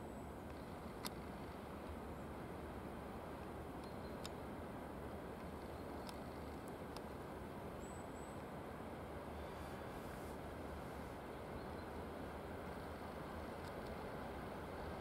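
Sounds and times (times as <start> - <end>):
faint sharp clicks: 0.4 - 2.0, 3.8 - 4.4, 5.4 - 7.2, 13.6 - 14.0.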